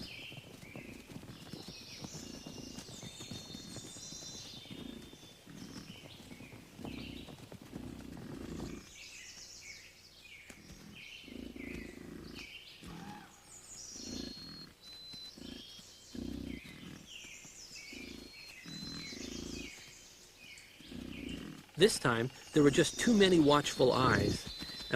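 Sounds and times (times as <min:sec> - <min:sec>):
birds chirping: 0:00.0 - 0:24.9
bison grunting: 0:04.6 - 0:08.9, 0:10.6 - 0:13.3, 0:13.9 - 0:17.2, 0:17.8 - 0:19.8, 0:20.8 - 0:24.9.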